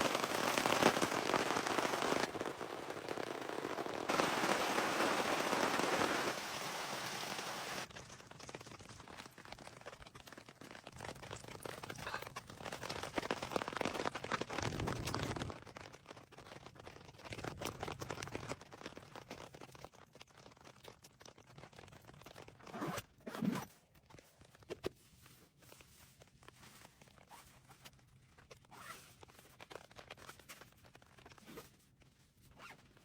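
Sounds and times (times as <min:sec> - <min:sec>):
material rustling and crinkling: 0:00.0 - 0:33.0.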